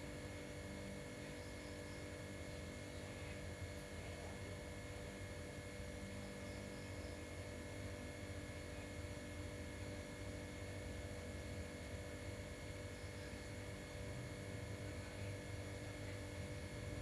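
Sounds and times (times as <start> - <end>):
low hum with constant tones: 0.0 - 17.0.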